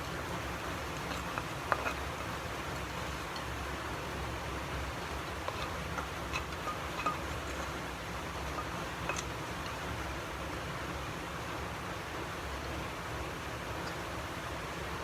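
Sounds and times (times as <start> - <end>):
food sizzling in oil: 0.0 - 10.4.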